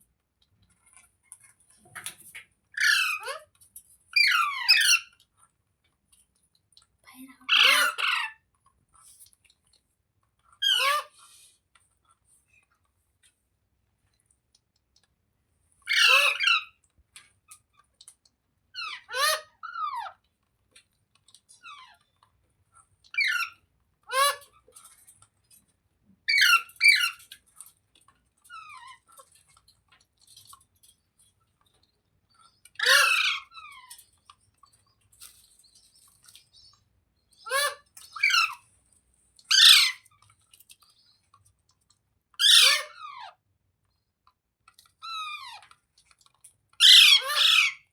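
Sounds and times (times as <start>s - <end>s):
parrot calling: 2.8s - 3.4s, 4.2s - 5.1s, 7.5s - 8.4s, 10.6s - 11.1s, 15.9s - 16.7s, 23.1s - 24.5s, 26.3s - 27.2s, 32.8s - 34.0s, 37.4s - 38.6s, 39.5s - 40.1s, 42.4s - 43.3s, 46.8s - 47.9s.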